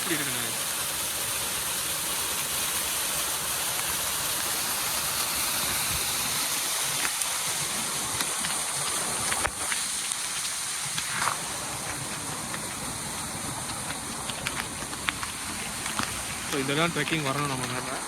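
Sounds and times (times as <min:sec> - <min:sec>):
waterfall splashing: 0:00.0 - 0:18.0.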